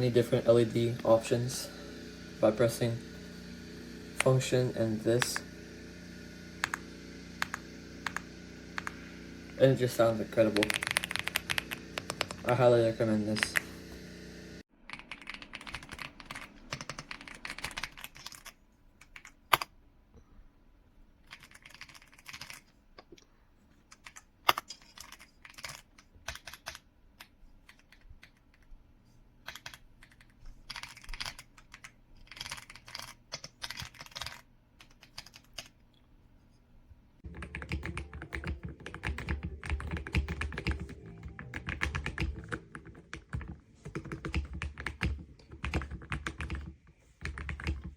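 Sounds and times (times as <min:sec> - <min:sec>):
mechanical keyboard typing: 0:06.6 - 0:06.8, 0:07.4 - 0:09.0, 0:09.9 - 0:13.6, 0:14.8 - 0:19.7, 0:21.3 - 0:22.7, 0:23.9 - 0:28.7, 0:29.4 - 0:35.7, 0:37.3 - 0:47.9.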